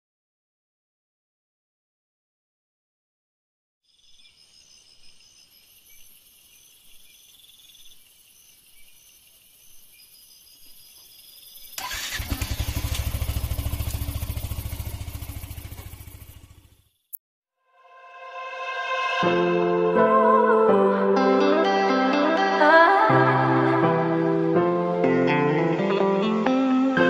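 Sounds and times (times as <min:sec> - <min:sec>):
motorcycle engine idling: 0:11.8 - 0:17.0.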